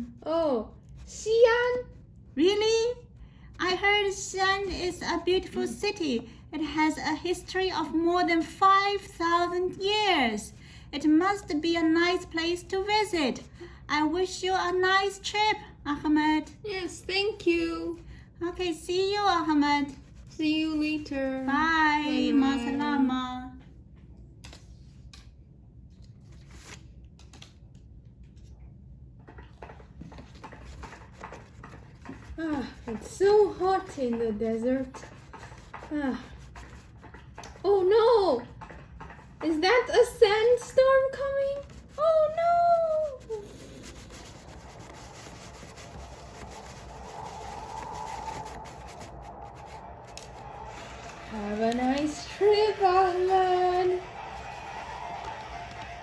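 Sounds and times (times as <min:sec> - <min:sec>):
low steady hum: 0:00.0 - 0:56.0
rushing rubbing noise: 0:41.5 - 0:56.0.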